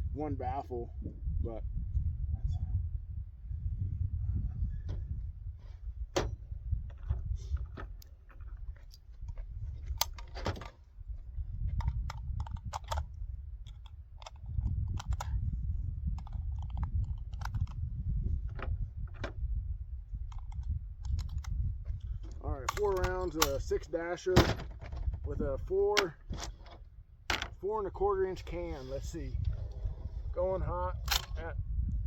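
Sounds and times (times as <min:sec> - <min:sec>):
wind rumble on microphone: 0:00.0 - 0:32.0
metallic clicks of rifle parts: 0:06.9 - 0:10.8, 0:11.8 - 0:15.4, 0:16.1 - 0:17.8, 0:20.3 - 0:23.9, 0:31.0 - 0:31.5.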